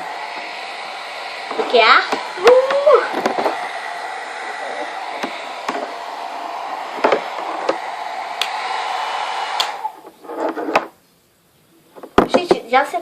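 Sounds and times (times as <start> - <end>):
hair dryer running: 0.0 - 10.2.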